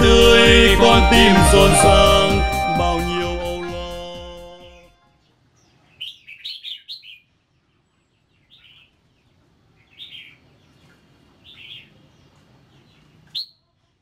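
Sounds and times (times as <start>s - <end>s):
small bird chirping: 5.6s - 14.0s.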